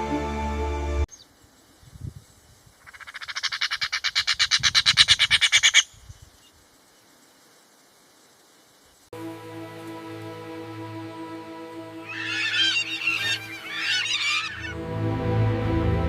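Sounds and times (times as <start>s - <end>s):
bird rattling call: 2.8s - 6.5s, 12.1s - 14.7s.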